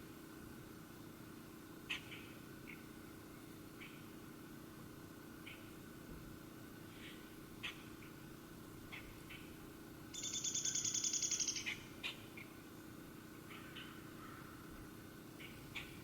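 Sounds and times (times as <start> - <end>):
songbird trilling: 10.1 - 12.2.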